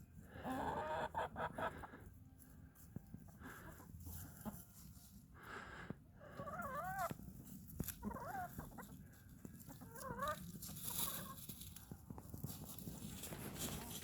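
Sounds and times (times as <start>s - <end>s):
chickens calling: 0.2s - 2.2s, 3.2s - 4.7s, 6.2s - 11.9s.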